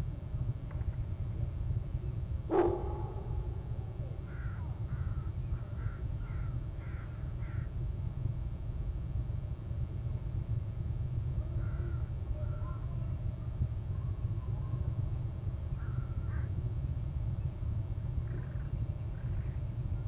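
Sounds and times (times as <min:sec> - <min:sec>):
steady low rumble: 0:00.0 - 0:20.0
bird calling: 0:02.5 - 0:04.6.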